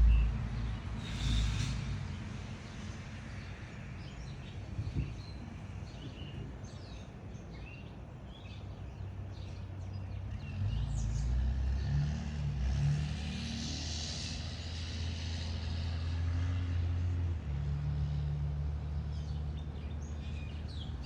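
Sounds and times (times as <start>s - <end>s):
steady low rumble: 0.0s - 2.0s
songbirds chirping: 2.1s - 11.9s, 18.7s - 21.0s.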